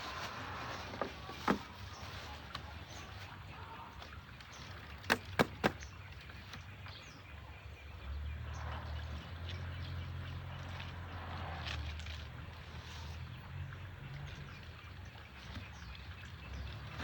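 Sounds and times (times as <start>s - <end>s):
faint outdoor background: 0.0s - 17.0s
sharp knocks: 5.1s - 5.8s.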